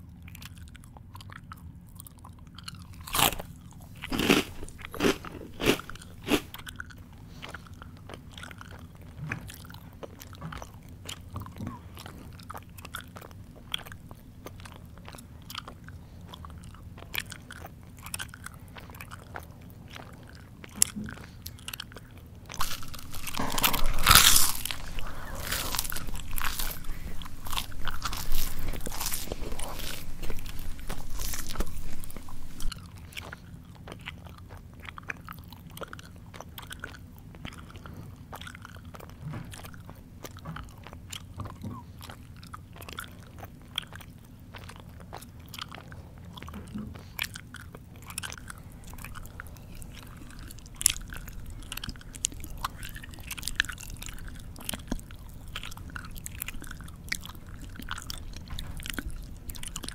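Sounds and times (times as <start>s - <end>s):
mouth chewing and crunching: 0.0s - 59.9s
mouth smacks and clicks: 22.5s - 32.8s.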